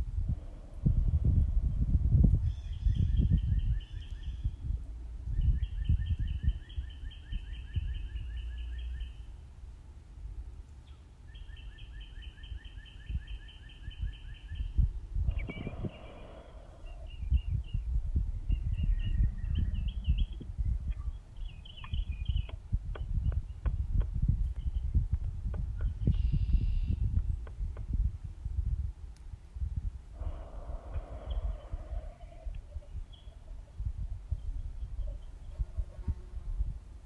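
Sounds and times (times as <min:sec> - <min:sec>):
songbird singing trills: 0:02.4 - 0:04.7, 0:05.3 - 0:09.4, 0:10.8 - 0:27.7, 0:31.0 - 0:35.6
harsh bird call: 0:15.3 - 0:17.2
low rumbling and thumping: 0:22.3 - 0:28.8.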